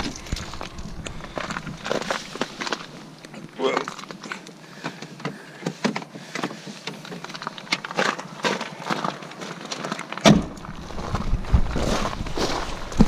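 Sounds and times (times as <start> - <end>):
low rumble: 0.0 - 4.1, 10.5 - 13.0
footsteps crunching on ice: 0.0 - 13.0.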